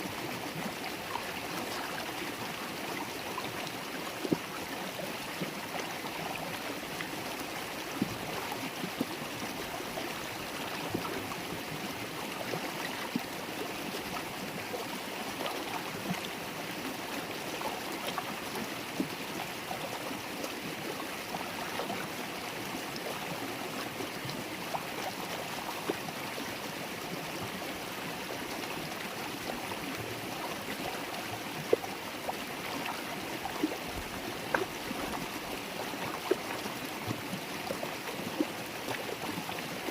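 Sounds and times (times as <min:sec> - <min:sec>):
river water babbling over stones: 0:00.0 - 0:39.9
water splashes and plinks: 0:29.3 - 0:39.9.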